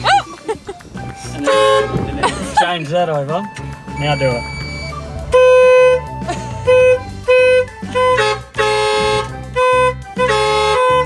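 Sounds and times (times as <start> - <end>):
garbage truck horn honking: 1.4 - 2.2, 3.9 - 11.0.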